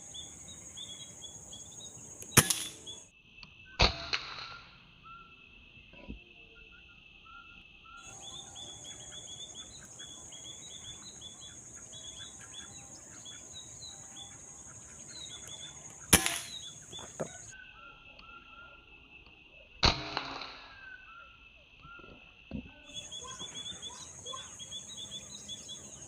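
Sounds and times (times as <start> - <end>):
small birds chirping: 0.0 - 3.1, 8.0 - 18.7, 22.9 - 26.0
insect hiss: 0.0 - 26.0
gunshot with ringing tail: 2.3 - 3.0, 16.1 - 17.1.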